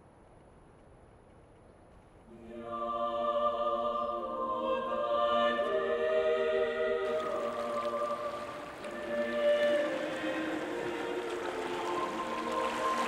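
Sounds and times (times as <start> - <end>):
slow choir-like chords: 2.3 - 13.0
faint hiss: 7.1 - 13.0.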